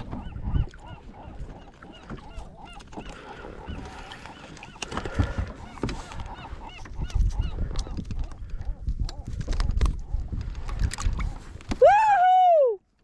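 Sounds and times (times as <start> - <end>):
birds honking: 0.0 - 7.6.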